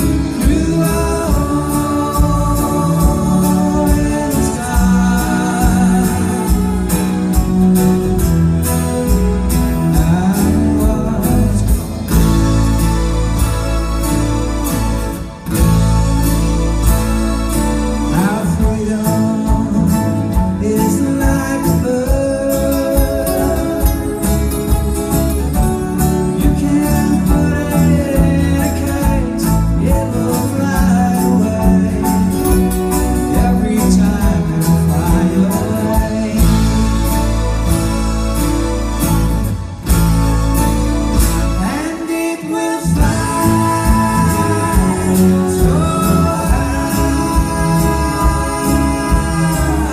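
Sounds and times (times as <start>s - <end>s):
person singing: 0.0s - 8.1s, 16.3s - 39.8s, 41.2s - 49.9s
live band playing pop song: 0.0s - 49.9s.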